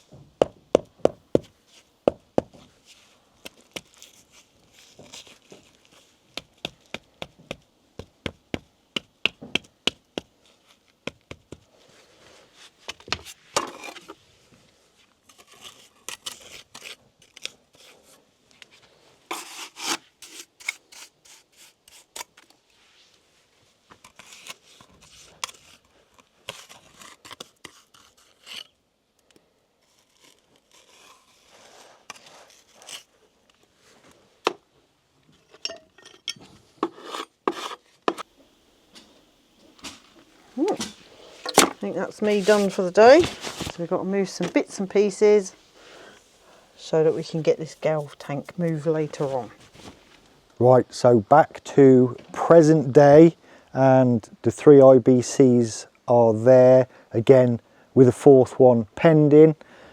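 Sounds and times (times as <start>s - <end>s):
trowel scraping mortar and stone: 12.9s - 14.2s, 15.2s - 18.1s, 19.3s - 22.4s, 24.0s - 28.8s, 29.9s - 33.1s, 35.4s - 38.3s, 40.6s - 45.2s.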